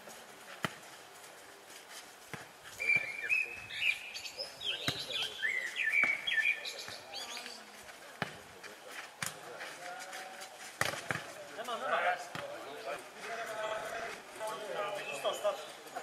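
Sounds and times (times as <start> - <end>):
ball kicked and bouncing on asphalt: 0.5 - 3.2, 4.8 - 5.2, 8.1 - 14.6.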